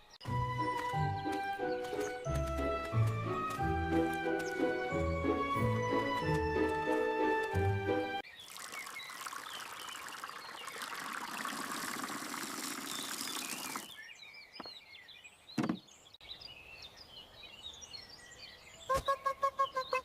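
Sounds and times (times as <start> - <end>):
faint birds chirping: 0.0 - 7.3, 7.9 - 20.0
rushing water hiss: 8.5 - 13.9.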